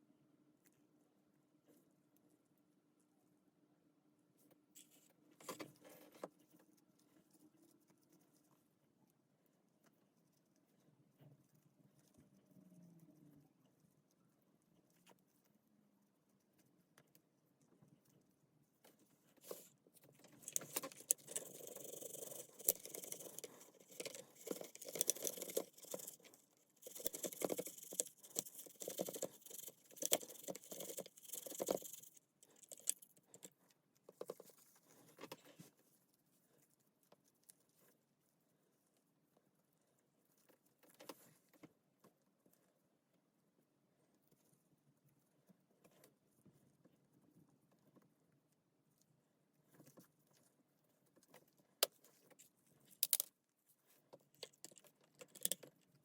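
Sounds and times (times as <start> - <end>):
small parts clicking and rattling: 20.2 - 34.6, 52.9 - 53.4, 54.3 - 56.0.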